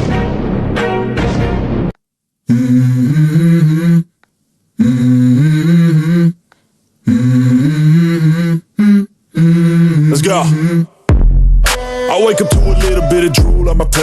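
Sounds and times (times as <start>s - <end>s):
person humming a melody: 2.5s - 4.2s, 4.8s - 11.0s, 11.8s - 14.0s.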